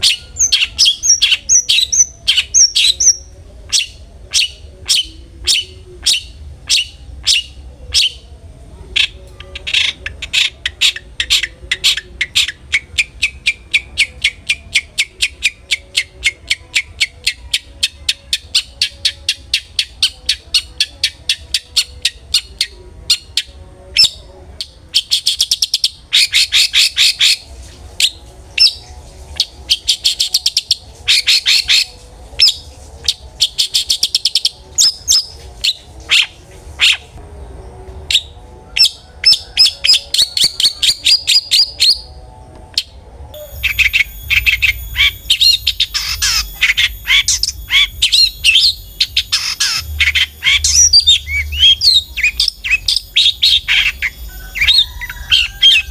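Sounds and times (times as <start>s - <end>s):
bird chattering song: 0.0s - 8.3s, 8.9s - 27.4s, 42.8s - 55.9s.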